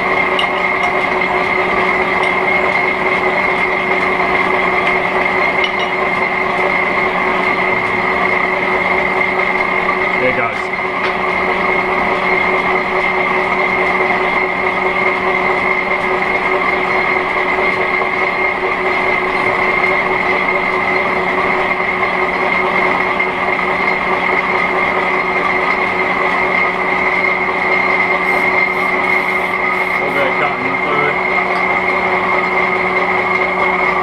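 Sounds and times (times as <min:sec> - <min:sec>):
metal lathe cutting steel: 0:00.0 - 0:34.0
constant high tone: 0:28.1 - 0:31.6.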